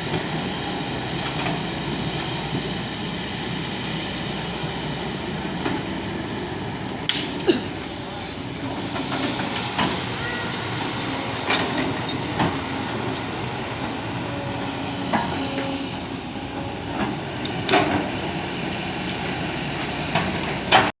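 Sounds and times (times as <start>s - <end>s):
excavator running: 0.0s - 21.0s.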